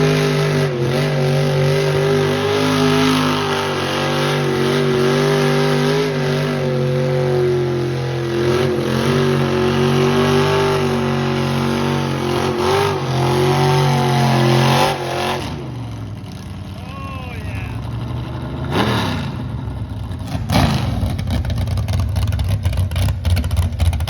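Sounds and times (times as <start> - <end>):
car engine revving high: 0.0 - 15.7.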